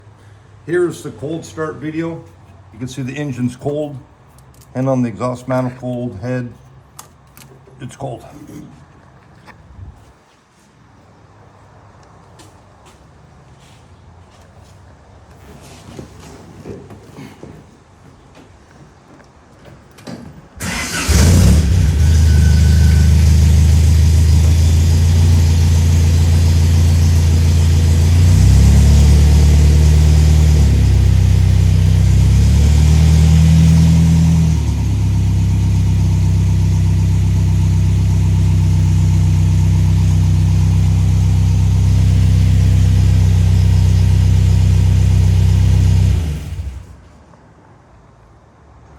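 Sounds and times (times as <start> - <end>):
car engine starting and idling: 20.6 - 47.0.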